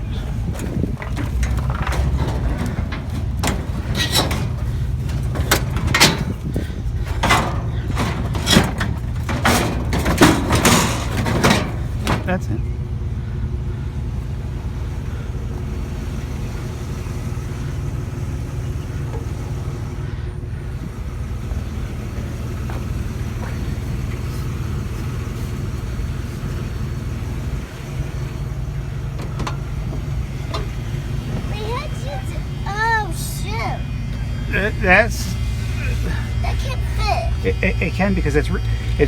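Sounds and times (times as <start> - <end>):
car engine and road noise: 0.0 - 39.0
faint clicks and rattles: 0.4 - 12.4.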